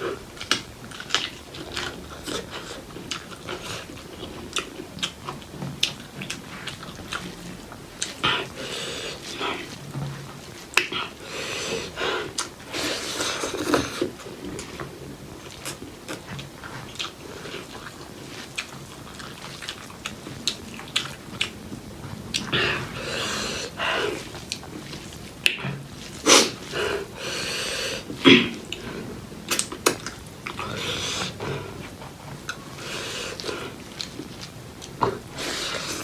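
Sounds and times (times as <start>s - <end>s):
wet chewing: 0.0s - 36.0s
loud breaths: 8.2s - 9.8s, 10.8s - 14.2s, 22.4s - 24.4s, 26.2s - 29.3s, 30.6s - 33.8s, 35.2s - 36.0s.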